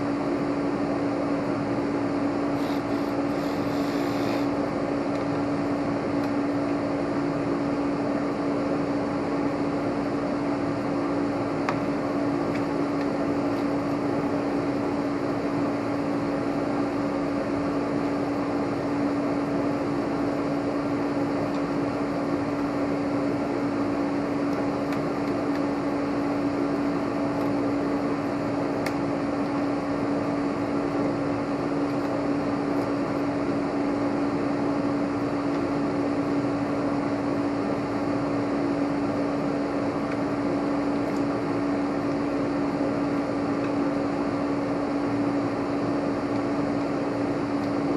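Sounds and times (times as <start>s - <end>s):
constant hum: 0.0s - 47.9s
fan whirring: 0.0s - 47.9s.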